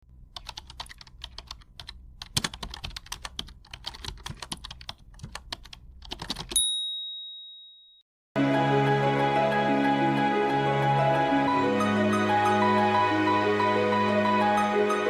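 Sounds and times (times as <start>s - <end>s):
bright ringing ding: 6.6s - 8.0s.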